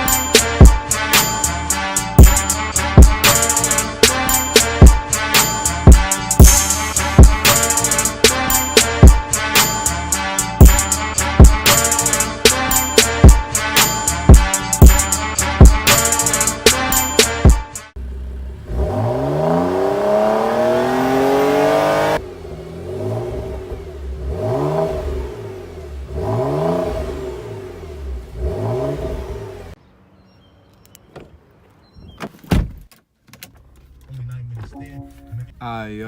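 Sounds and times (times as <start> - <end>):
car engine revving: 0.0 - 16.9, 18.0 - 29.8
sharp thump: 32.2 - 32.9.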